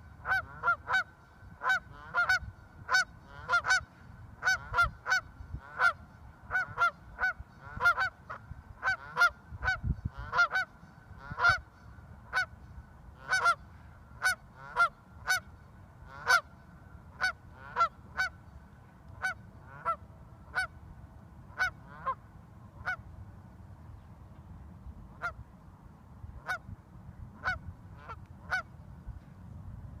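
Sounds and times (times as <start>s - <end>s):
goose honking: 0.2s - 11.6s, 13.2s - 13.6s, 14.2s - 15.4s, 16.1s - 16.5s, 17.2s - 18.4s, 19.2s - 20.7s, 21.6s - 22.2s, 27.4s - 28.7s.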